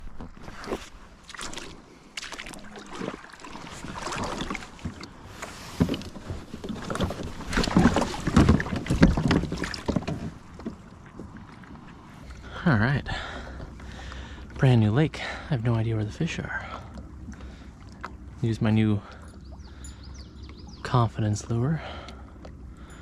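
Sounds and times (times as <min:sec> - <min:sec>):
water splashing against kayak: 0:00.0 - 0:23.0.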